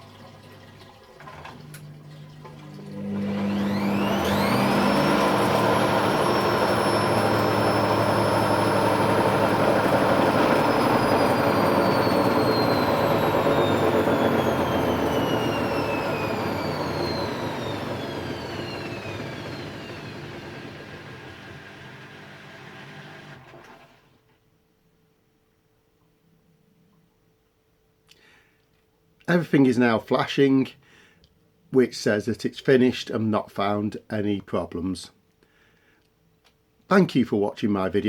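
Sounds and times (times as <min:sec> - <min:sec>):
washing machine spinning: 0:00.0 - 0:24.1.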